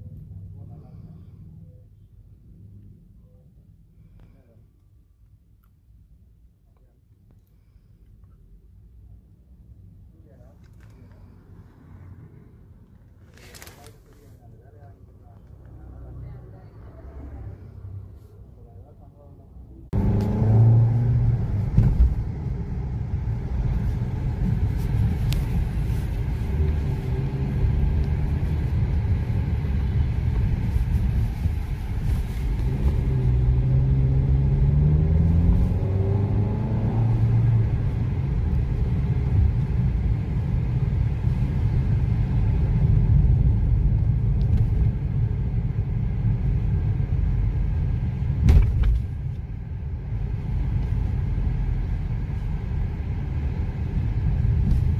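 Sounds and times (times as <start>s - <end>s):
road rumble: 0.0s - 54.9s
car engine running: 19.9s - 54.9s.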